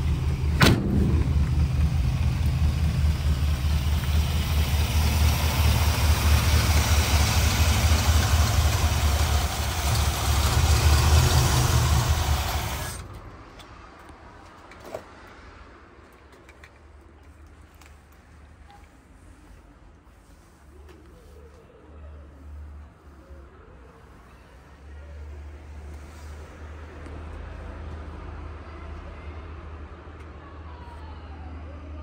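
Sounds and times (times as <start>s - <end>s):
truck engine running: 0.0s - 13.3s.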